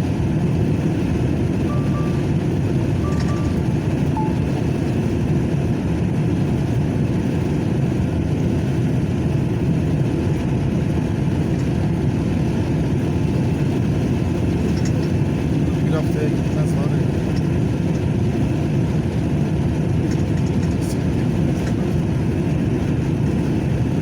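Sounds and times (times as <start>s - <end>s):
truck engine droning: 0.0s - 24.0s
short electronic beeps: 1.7s - 4.7s.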